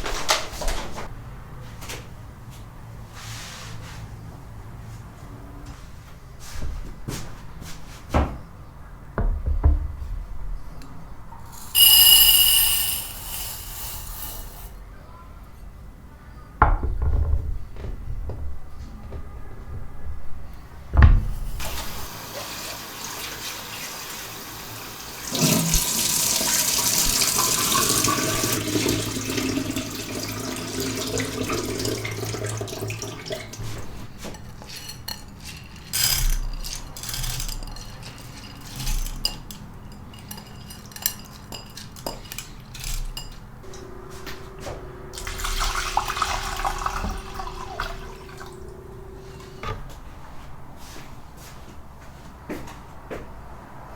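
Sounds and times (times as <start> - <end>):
tap running into sink: 21.0 - 23.8, 25.2 - 33.9, 45.2 - 48.6
dishes knocking and clinking: 25.4 - 43.4
steady hum: 43.6 - 50.8.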